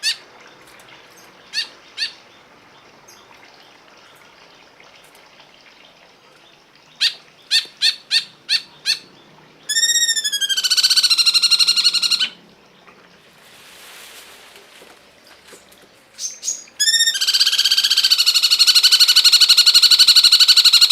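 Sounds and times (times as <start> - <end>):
bird calling: 9.7 - 12.4, 16.2 - 20.9.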